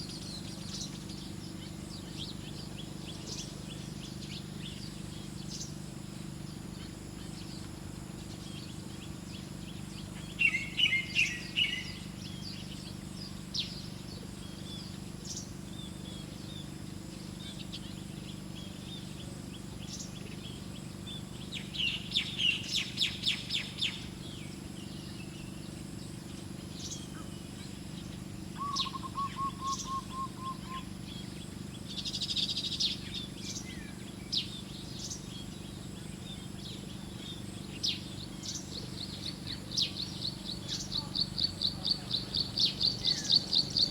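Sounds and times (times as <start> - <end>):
small birds chirping: 0.0 - 43.9
low bird trill: 28.0 - 35.5.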